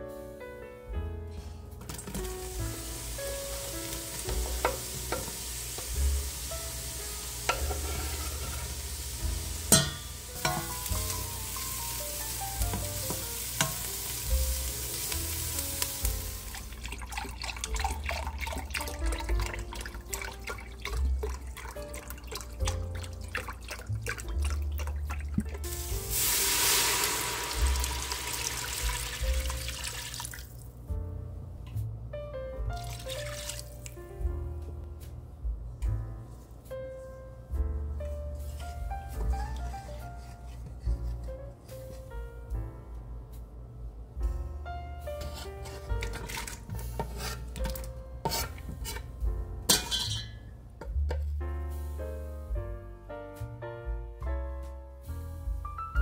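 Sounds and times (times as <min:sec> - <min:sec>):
background music: 0:00.0 - 0:56.0
onion and garlic sizzling in butter: 0:02.2 - 0:16.9, 0:25.6 - 0:30.2, 0:48.2 - 0:49.1
broth pouring: 0:16.2 - 0:30.7, 0:32.8 - 0:33.7.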